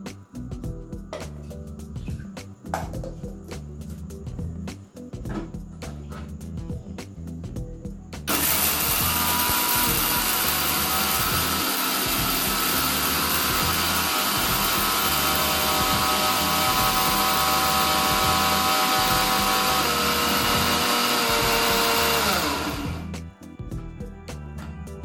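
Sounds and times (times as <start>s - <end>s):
mixer grinder motor whining: 8.3s - 23.2s.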